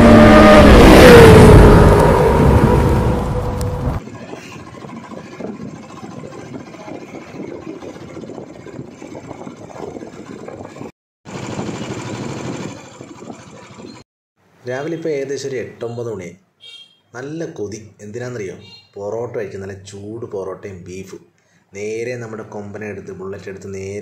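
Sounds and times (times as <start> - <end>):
motorcycle engine running: 4.2 - 14.0.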